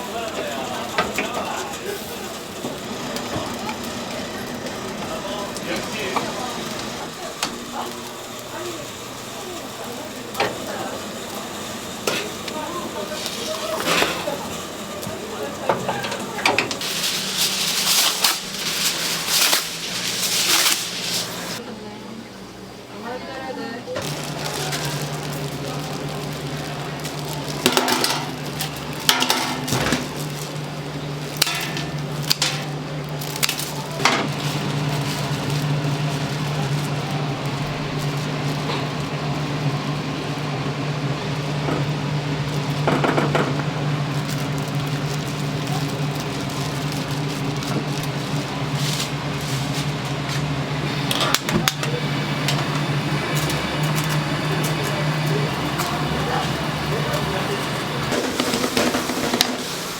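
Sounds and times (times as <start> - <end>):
low machine hum: 0.0 - 59.9
pans and utensils clattering: 13.1 - 21.6, 27.6 - 30.4, 31.3 - 32.8, 53.5 - 59.9.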